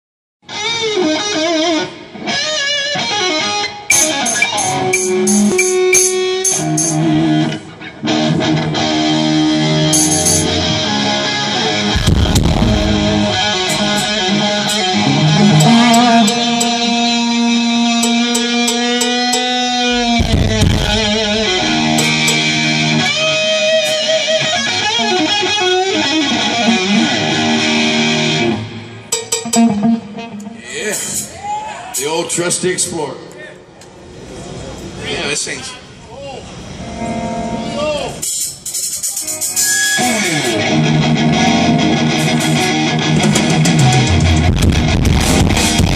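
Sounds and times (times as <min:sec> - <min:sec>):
electric guitar through amplifier: 0:00.5 - 0:30.6, 0:39.9 - 0:45.9
deep low booms: 0:11.9 - 0:15.4, 0:19.9 - 0:23.1.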